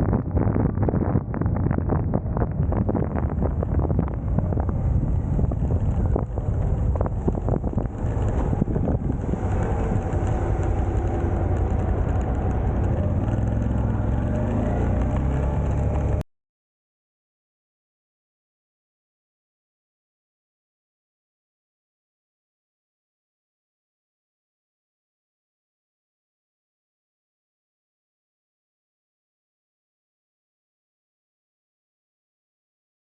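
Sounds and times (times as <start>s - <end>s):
motorcycle engine running: 0.0s - 16.2s
wind buffeting microphone: 0.0s - 16.2s.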